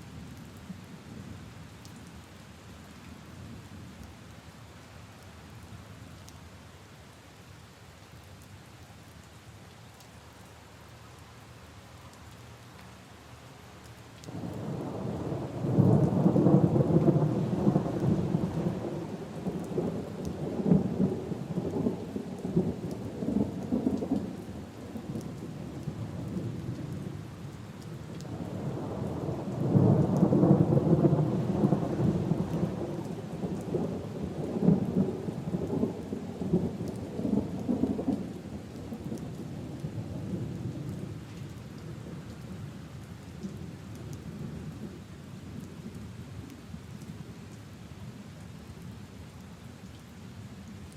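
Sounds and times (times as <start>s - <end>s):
rain falling: 0.0s - 50.9s
thunder rumbling: 14.3s - 27.2s, 28.3s - 41.1s.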